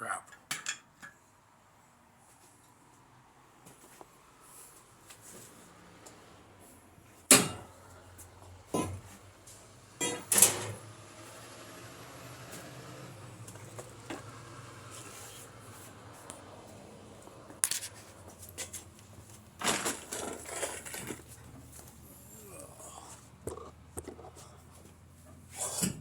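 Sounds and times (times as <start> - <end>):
knocks and clatter of work: 7.3 - 11.4, 17.5 - 22.0.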